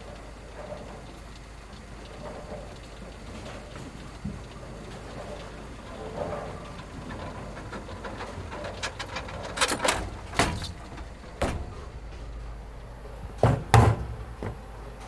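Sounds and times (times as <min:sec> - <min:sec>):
knocks and bangs: 0:10.4 - 0:12.4, 0:13.3 - 0:14.6.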